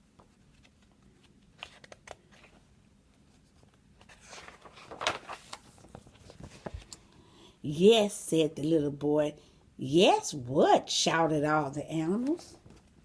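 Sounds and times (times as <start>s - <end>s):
paper page rustle: 0.1s - 7.0s.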